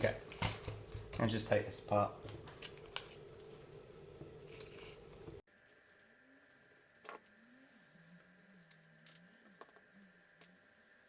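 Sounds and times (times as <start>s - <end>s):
faint wavering low tone: 7.2s - 11.0s.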